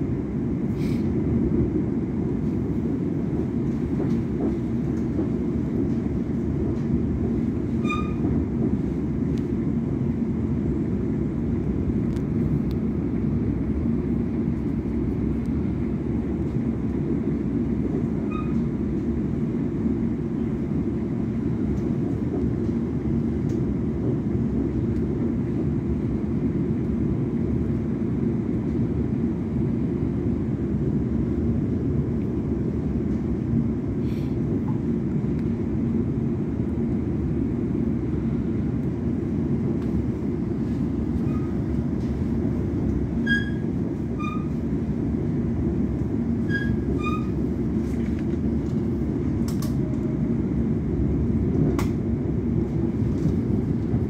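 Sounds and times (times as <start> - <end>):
train rumble inside carriage: 0.0 - 54.0
high squeaks: 43.2 - 43.6.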